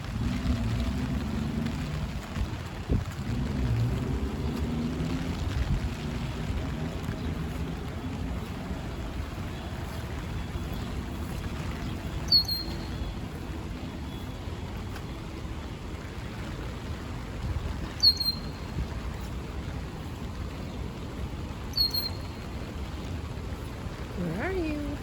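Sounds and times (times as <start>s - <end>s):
rain and wind rumble: 0.0s - 25.0s
songbird calls: 9.5s - 13.5s, 17.8s - 19.2s, 21.6s - 22.7s.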